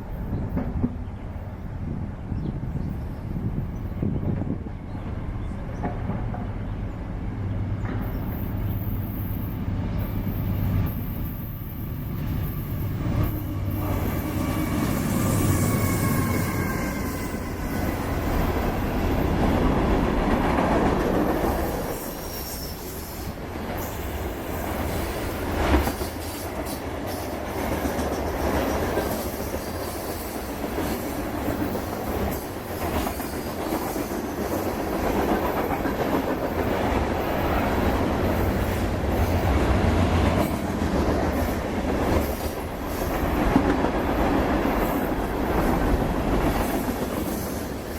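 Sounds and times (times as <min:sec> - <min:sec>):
locomotive engine drone: 0:04.0 - 0:20.8
wheel squeal: 0:21.9 - 0:23.3.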